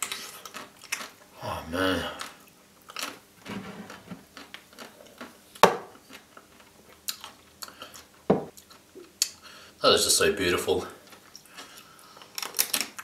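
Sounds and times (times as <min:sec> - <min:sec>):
chewing ice cream: 0:00.0 - 0:01.3.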